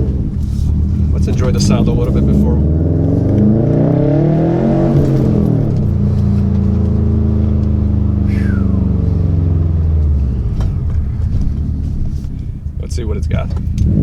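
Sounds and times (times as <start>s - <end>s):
car engine revving through exhaust: 0.0s - 14.0s
falling turbo whistle: 8.2s - 9.0s.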